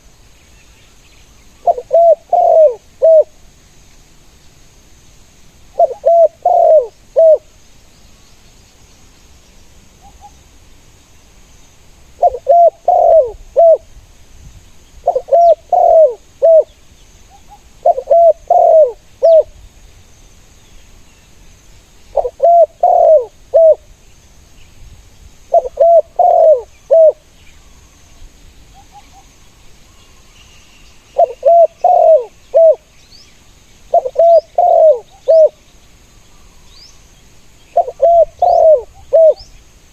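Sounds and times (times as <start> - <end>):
doves cooing: 1.6 - 3.3, 5.8 - 7.5, 12.2 - 13.9, 15.0 - 16.7, 17.4 - 19.5, 22.1 - 23.8, 25.5 - 27.2, 31.2 - 32.8, 33.9 - 35.6, 37.7 - 39.5.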